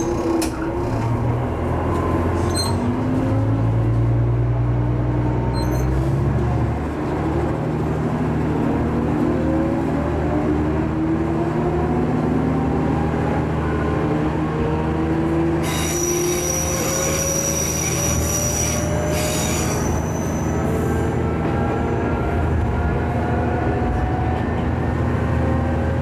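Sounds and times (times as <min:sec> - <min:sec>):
wheels squealing on rails: 0:00.0 - 0:03.5, 0:05.5 - 0:06.3, 0:15.6 - 0:21.4
diesel railcar running: 0:00.0 - 0:26.0.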